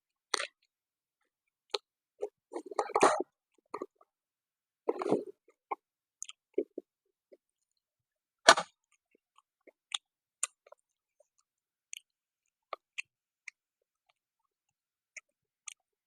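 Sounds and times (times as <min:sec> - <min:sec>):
person chewing and lip-smacking: 0:04.9 - 0:06.9, 0:08.9 - 0:14.2.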